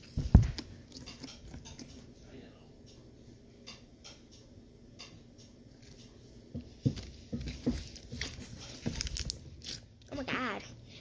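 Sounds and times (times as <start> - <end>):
slime squelching and popping: 7.7 - 10.1.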